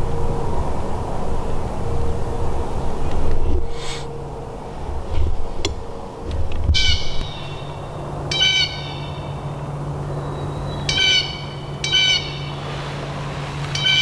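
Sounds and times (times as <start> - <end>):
low steady hum: 0.0 - 14.0
bird calling loudly: 6.7 - 12.6, 13.7 - 14.0.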